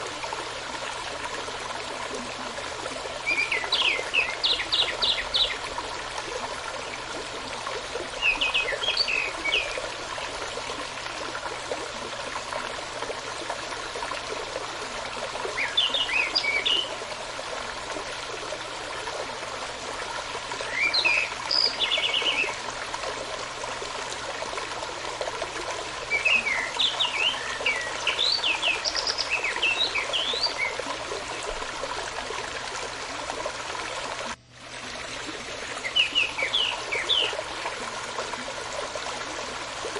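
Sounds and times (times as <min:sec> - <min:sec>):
running stream: 0:00.0 - 0:39.9
songbird chirping and trilling: 0:03.3 - 0:05.6, 0:20.7 - 0:22.6, 0:26.2 - 0:30.8, 0:35.8 - 0:37.4.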